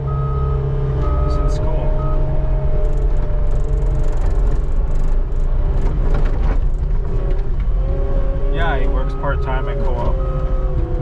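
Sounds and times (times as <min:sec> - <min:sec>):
skid steer engine droning: 0:00.0 - 0:11.0.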